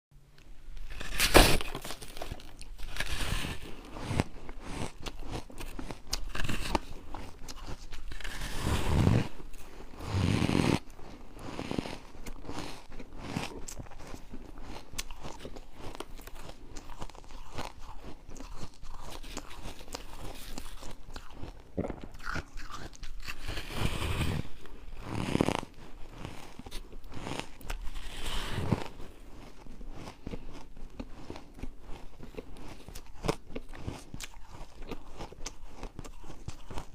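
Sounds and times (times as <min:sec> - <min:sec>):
person crunching ice: 0:00.8 - 0:36.9.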